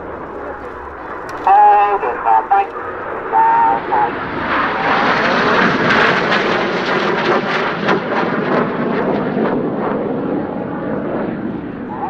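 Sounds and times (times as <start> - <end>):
jet crackles: 0.0 - 6.4
jet engine rushing past: 0.0 - 12.0.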